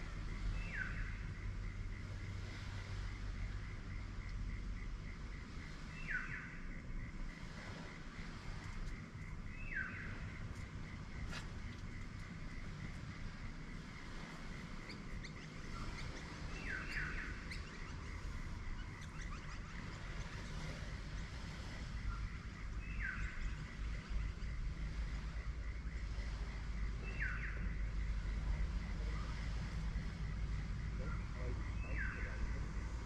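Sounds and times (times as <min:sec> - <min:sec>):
low outdoor rumble: 0:00.0 - 0:33.0.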